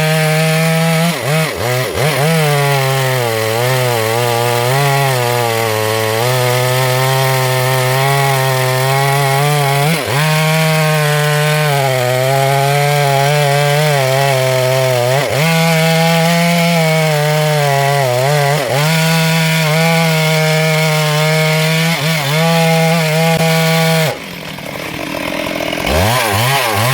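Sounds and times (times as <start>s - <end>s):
chainsaw cutting wood: 0.0s - 26.9s.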